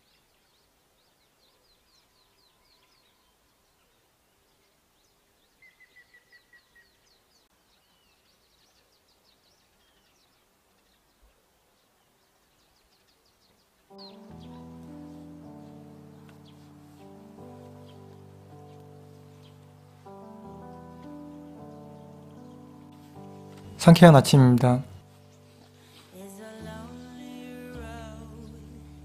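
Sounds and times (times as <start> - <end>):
high bird chirps: 12.6 - 24.3
run of even bird notes: 13.9 - 29.0.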